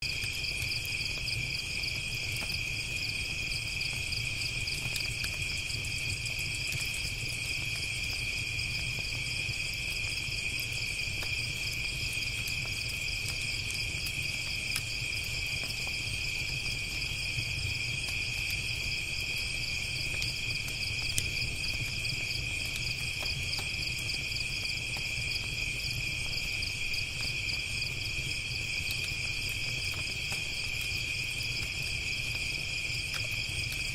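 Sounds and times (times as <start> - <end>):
crickets chirping: 0.0 - 33.9
campfire crackling pops: 8.8 - 33.9.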